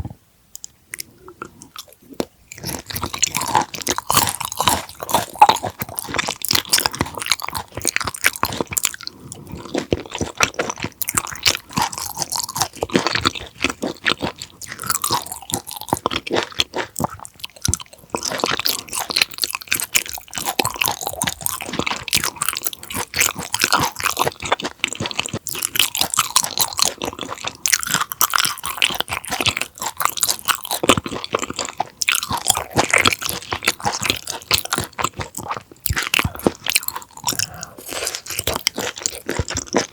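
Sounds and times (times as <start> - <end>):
close chewing with wet clicks: 0.6 - 39.9.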